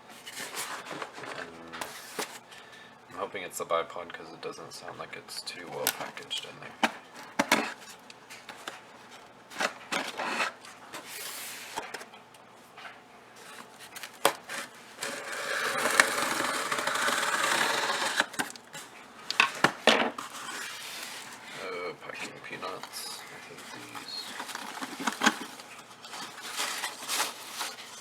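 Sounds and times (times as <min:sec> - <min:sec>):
rustling packing peanuts: 0:00.1 - 0:02.8, 0:06.0 - 0:12.1, 0:13.4 - 0:28.0.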